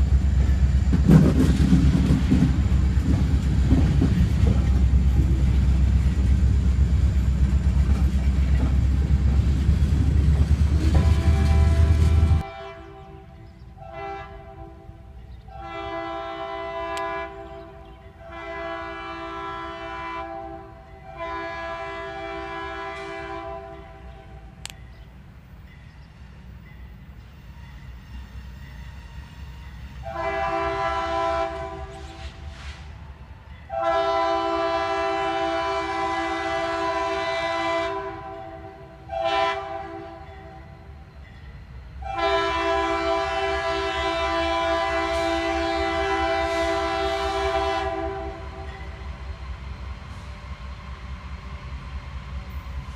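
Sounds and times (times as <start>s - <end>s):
low rumble of train: 0.0s - 52.9s
locomotive air horn blasts: 10.8s - 24.3s, 30.0s - 32.8s, 33.7s - 40.8s, 42.0s - 48.9s.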